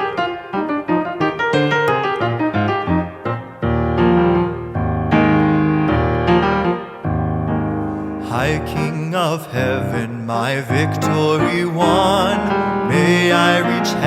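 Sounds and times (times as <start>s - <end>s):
solo piano playing: 0.0s - 14.0s.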